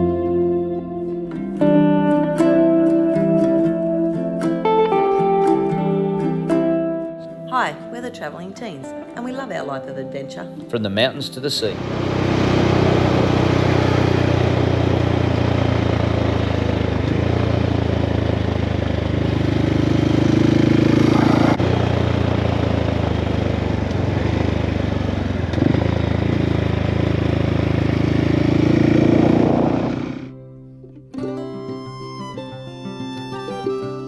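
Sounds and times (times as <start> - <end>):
motorcycle engine running: 11.6 - 30.4.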